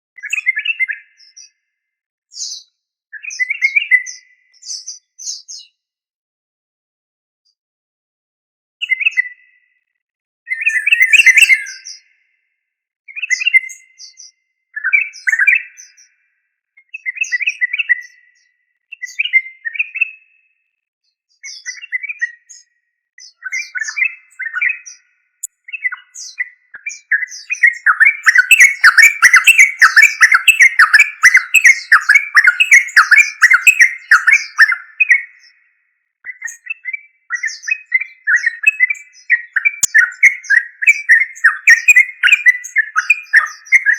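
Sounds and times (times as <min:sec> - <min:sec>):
bulbul singing: 0:10.6 - 0:12.0, 0:27.1 - 0:35.5, 0:38.6 - 0:43.9.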